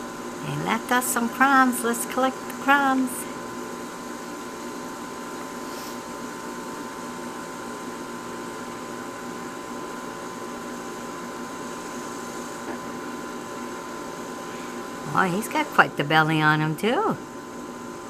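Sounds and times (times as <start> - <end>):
machine hum with steady tones: 0.0 - 18.0.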